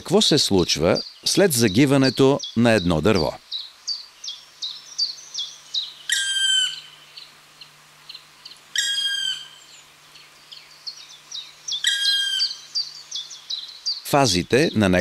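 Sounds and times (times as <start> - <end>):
bird chirping high: 0.6 - 15.0
bird falling call: 4.3 - 14.0.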